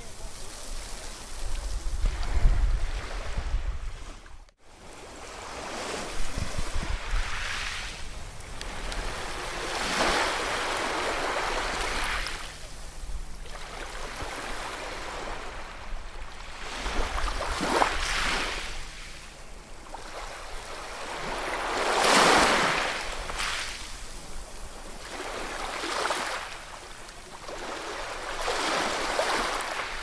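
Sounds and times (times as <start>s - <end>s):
ocean waves washing on shore: 0.0s - 30.0s.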